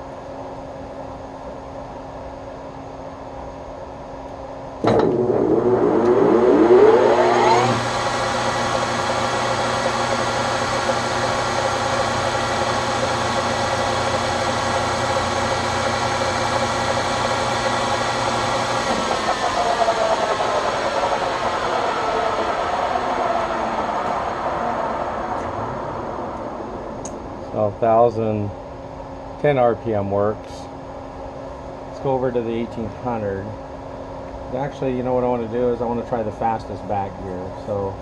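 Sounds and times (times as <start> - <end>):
phase converter humming: 3.6 - 38.0
lathe motor spinning: 4.8 - 27.8.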